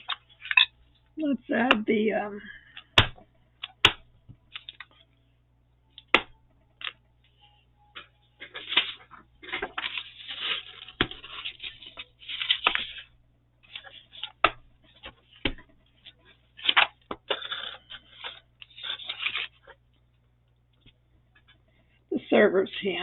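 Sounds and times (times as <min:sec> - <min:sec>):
paper rustling and crinkling: 0:08.4 - 0:19.8.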